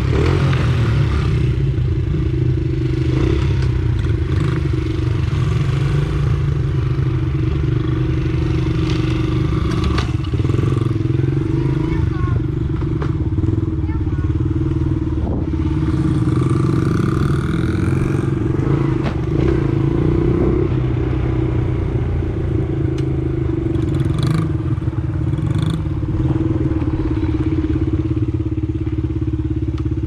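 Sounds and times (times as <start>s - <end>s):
pit bike engine running: 0.0s - 30.0s.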